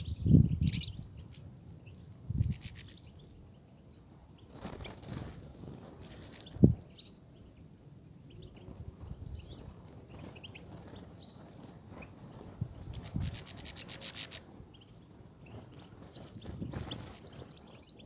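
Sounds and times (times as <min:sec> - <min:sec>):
finches chirping: 0:00.0 - 0:03.4.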